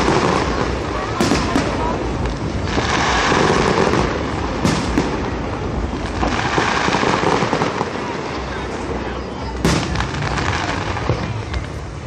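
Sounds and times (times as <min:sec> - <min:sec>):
fireworks crackling: 0:00.0 - 0:12.0
sharp firework bang: 0:02.6 - 0:05.4, 0:09.6 - 0:11.4.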